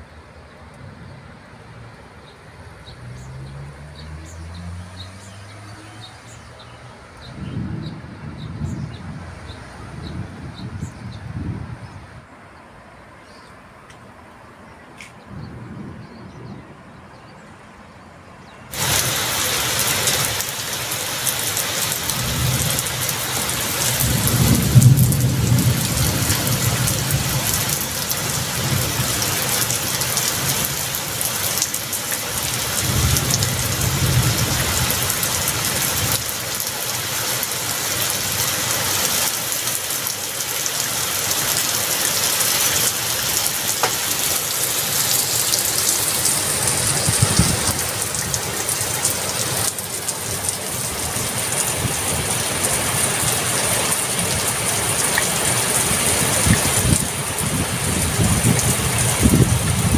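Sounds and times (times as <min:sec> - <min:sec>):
heavy rain pouring: 0:00.0 - 0:11.9, 0:18.7 - 0:59.9
thunder rumbling: 0:07.3 - 0:12.1, 0:15.3 - 0:17.0, 0:18.7 - 0:59.9.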